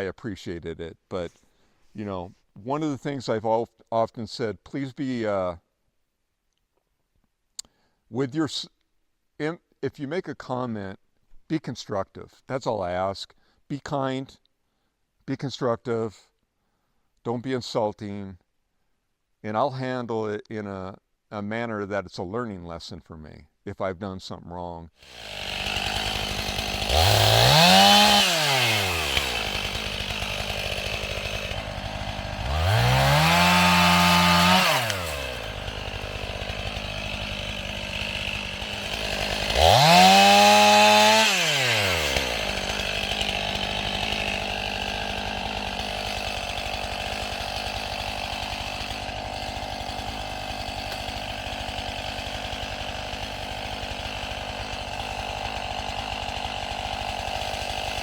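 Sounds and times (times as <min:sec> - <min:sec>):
chainsaw idling and revving: 0:25.0 - 0:58.0.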